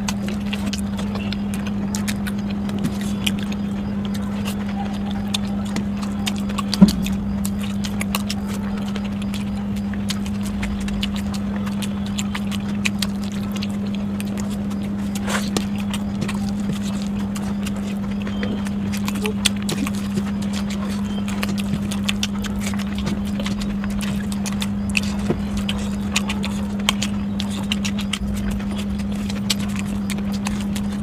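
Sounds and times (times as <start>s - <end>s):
steady low hum: 0.0s - 31.0s
wet chewing: 0.0s - 31.0s.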